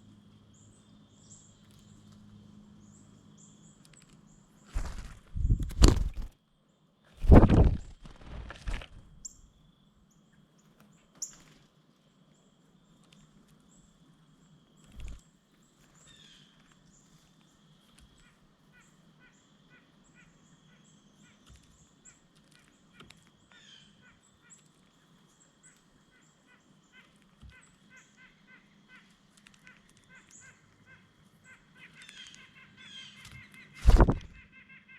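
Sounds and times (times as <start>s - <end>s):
loud thumps: 5.3s - 6.3s, 7.2s - 9.0s, 33.8s - 34.4s
nuthatch nasal calls: 26.1s - 34.9s.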